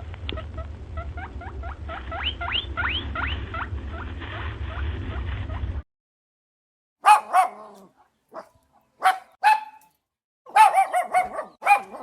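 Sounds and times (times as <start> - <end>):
small dog barking: 7.0 - 9.9, 10.5 - 12.0.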